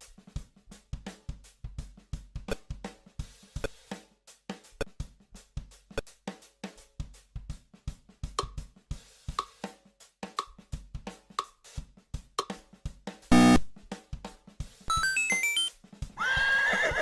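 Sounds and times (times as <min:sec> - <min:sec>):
drum kit beat: 0:00.0 - 0:16.2
loud sound with many overtones: 0:13.3 - 0:13.6.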